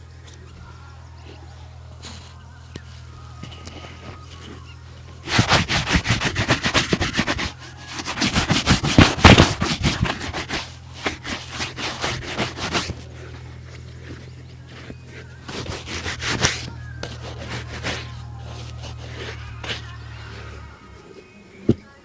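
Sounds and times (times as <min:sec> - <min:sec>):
shoe polishing rubbing strokes: 0:05.2 - 0:20.6.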